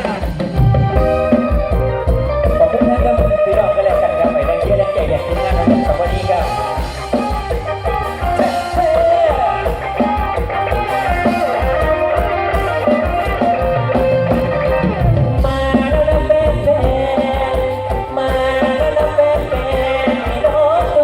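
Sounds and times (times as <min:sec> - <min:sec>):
melodic instrumental line: 0:00.0 - 0:21.0
steady drum beat: 0:00.0 - 0:21.0.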